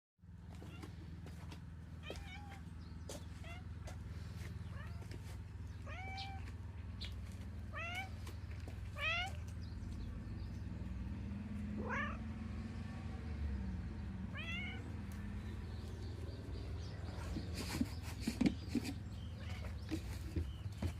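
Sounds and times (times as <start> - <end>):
cat meowing: 2.0 - 2.6, 5.8 - 6.5, 7.7 - 8.2, 9.0 - 9.4, 11.8 - 12.2, 14.3 - 14.9.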